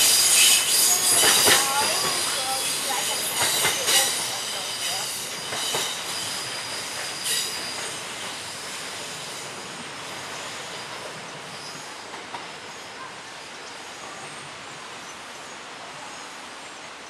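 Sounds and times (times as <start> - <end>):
train wheels squealing: 0.0 - 16.3
train rolling rumble: 0.0 - 17.0.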